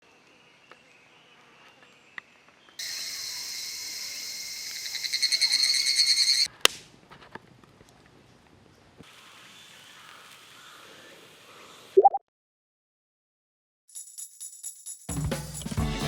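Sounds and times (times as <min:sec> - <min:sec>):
cicada calling: 0:02.8 - 0:06.5.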